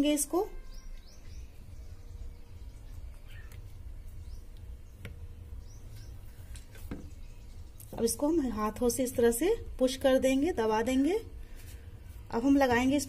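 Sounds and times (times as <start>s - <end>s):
faint bird chirps: 0.1s - 8.0s.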